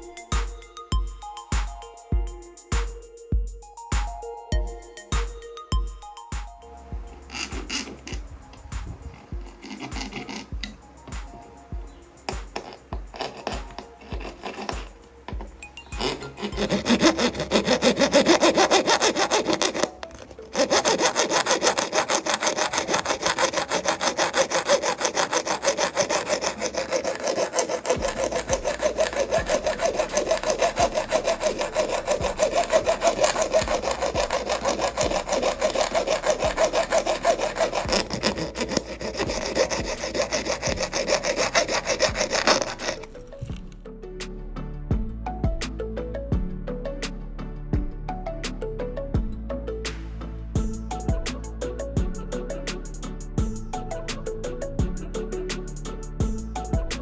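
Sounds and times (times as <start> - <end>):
sawing strokes: 6.8 - 43.4.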